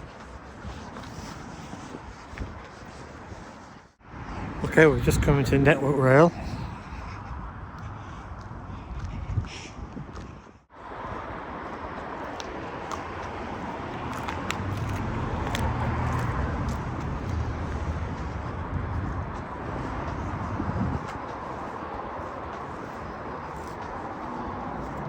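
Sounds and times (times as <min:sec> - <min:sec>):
city street traffic: 0:00.0 - 0:25.0
car passing: 0:04.0 - 0:08.9, 0:10.7 - 0:25.0.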